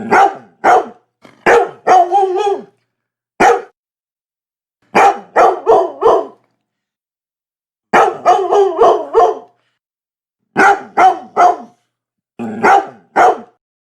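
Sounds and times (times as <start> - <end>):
dog barking: 0.0 - 2.8, 3.4 - 3.8, 4.9 - 6.4, 7.9 - 9.6, 10.5 - 11.8, 12.5 - 13.6.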